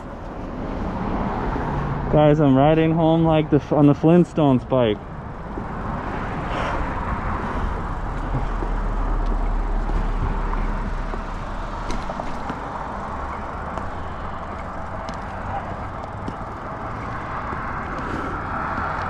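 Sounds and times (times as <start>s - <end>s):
bicycle rolling on road: 0.0s - 19.0s
wind rumbling on microphone: 5.0s - 19.0s.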